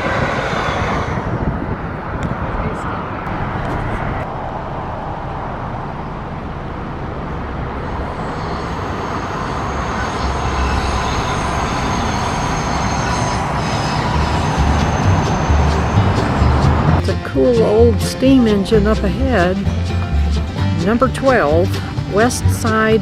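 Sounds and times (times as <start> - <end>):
train wheels rumbling on rail: 0.0 - 5.0, 6.7 - 23.0
faint high whine: 2.7 - 16.8.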